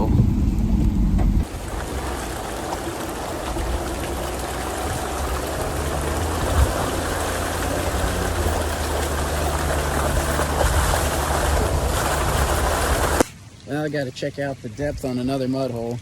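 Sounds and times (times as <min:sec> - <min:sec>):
engine running at low revs: 0:00.0 - 0:13.3
water rushing: 0:01.4 - 0:16.0.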